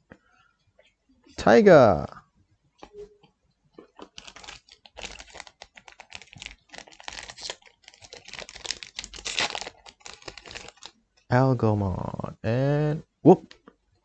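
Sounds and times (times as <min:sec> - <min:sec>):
trading cards clicking and rustling: 0:04.0 - 0:10.9.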